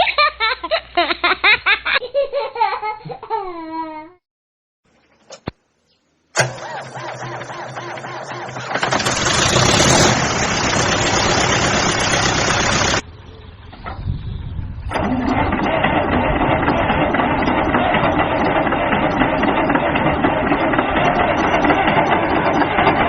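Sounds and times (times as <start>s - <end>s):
steady engine-like noise: 6.4s - 23.0s
vehicle engine running loudly: 6.4s - 23.0s.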